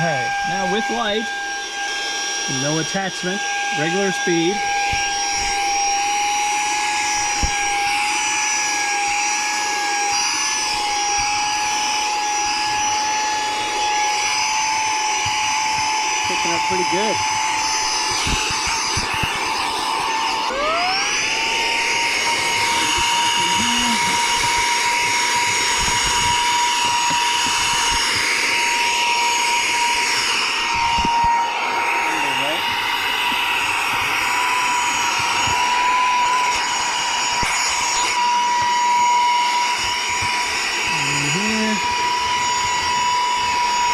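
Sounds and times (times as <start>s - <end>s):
handheld vacuum whining: 0.0s - 43.9s.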